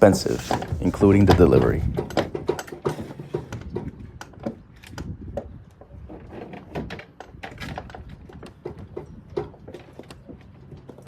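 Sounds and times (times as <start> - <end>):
objects clicking and knocking: 0.2 - 11.0.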